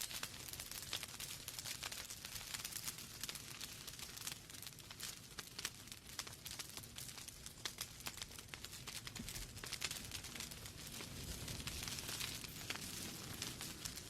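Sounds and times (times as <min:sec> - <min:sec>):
logs crackling and popping: 0:00.0 - 0:14.0
soft fire hiss: 0:00.0 - 0:14.0.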